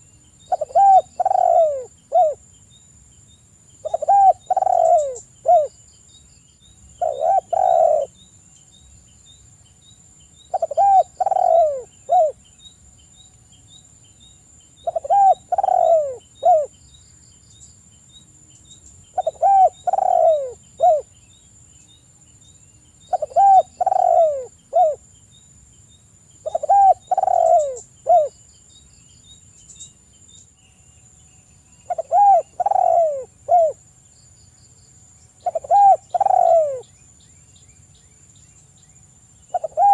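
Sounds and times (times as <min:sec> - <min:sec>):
high insect whine: 0:00.0 - 0:39.9
dove cooing: 0:00.5 - 0:02.4, 0:03.8 - 0:05.7, 0:07.0 - 0:08.2, 0:10.5 - 0:12.4, 0:14.8 - 0:16.7, 0:19.2 - 0:21.1, 0:23.1 - 0:25.0, 0:26.4 - 0:28.3, 0:31.9 - 0:33.8, 0:35.4 - 0:36.9, 0:39.5 - 0:39.9.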